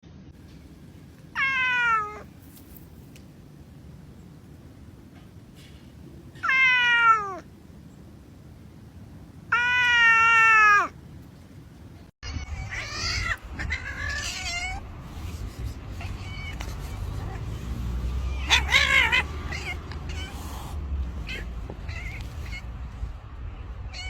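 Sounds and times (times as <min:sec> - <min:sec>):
cat meowing: 0:01.3 - 0:02.3, 0:06.4 - 0:07.5, 0:09.5 - 0:11.0, 0:12.2 - 0:14.9, 0:16.0 - 0:17.5, 0:18.2 - 0:22.7
rough cat calls: 0:01.3 - 0:02.3, 0:06.3 - 0:07.5, 0:09.5 - 0:11.0, 0:12.2 - 0:22.9.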